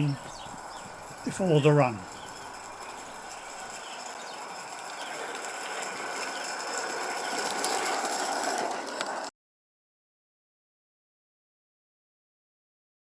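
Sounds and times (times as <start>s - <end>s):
model steam locomotive hissing: 0.0s - 9.2s.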